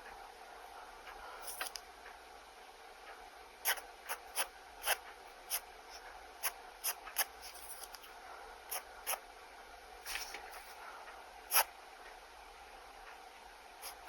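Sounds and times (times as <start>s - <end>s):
pen nib scratching paper: 1.4s - 1.8s, 3.6s - 8.1s, 8.7s - 9.2s, 10.1s - 10.8s, 11.5s - 11.7s.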